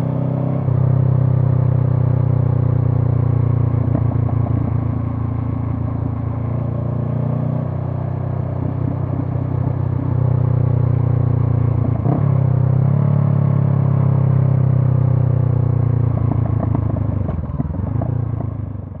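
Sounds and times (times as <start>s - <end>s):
motorcycle engine running: 14.6s - 19.0s.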